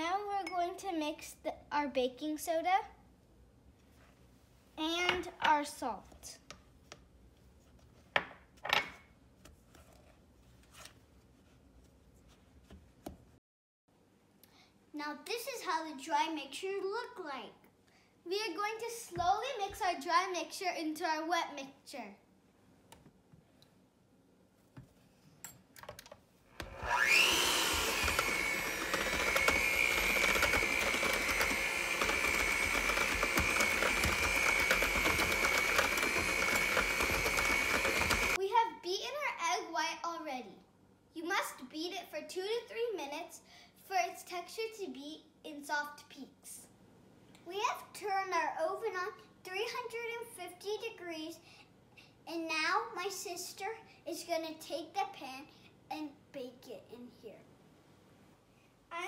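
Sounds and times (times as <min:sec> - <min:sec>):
electric mixer whining: 0:26.6 - 0:38.4.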